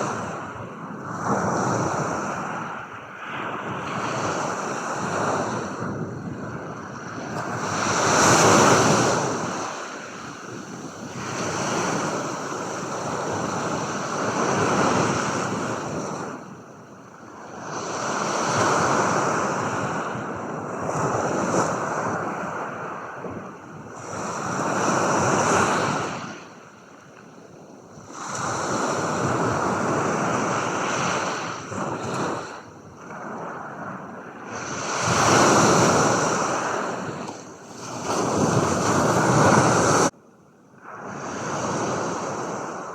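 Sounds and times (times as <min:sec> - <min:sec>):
ocean waves breaking: 0:07.2 - 0:16.6, 0:28.2 - 0:40.1.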